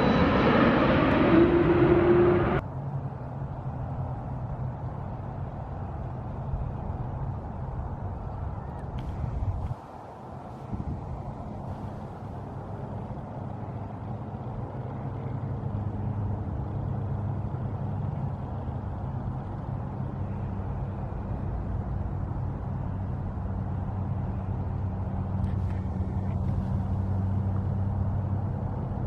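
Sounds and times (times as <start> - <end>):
low engine rumble: 0.0 - 2.6, 10.5 - 29.0.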